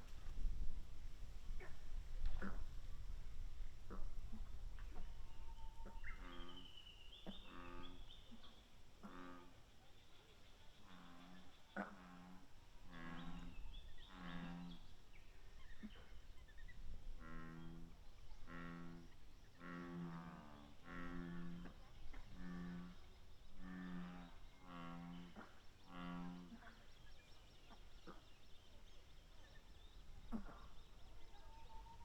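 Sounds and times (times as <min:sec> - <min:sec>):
deep moo-like animal call: 0:17.2 - 0:21.8.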